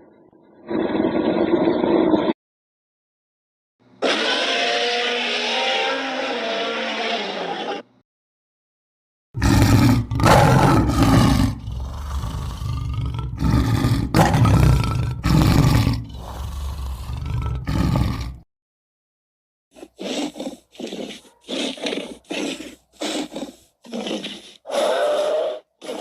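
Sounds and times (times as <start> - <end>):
high-pitched creature call: 4.0 - 7.8
creature roaring and growling: 4.0 - 7.9, 9.4 - 18.4, 19.8 - 26.0.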